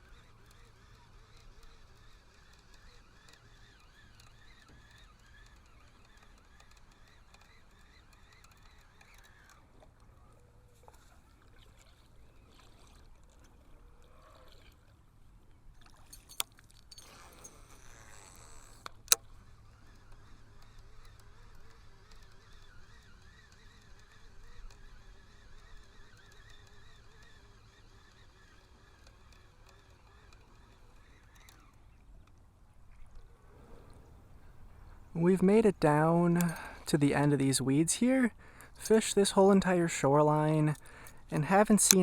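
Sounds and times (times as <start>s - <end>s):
water lapping against hull: 7.0s - 32.1s.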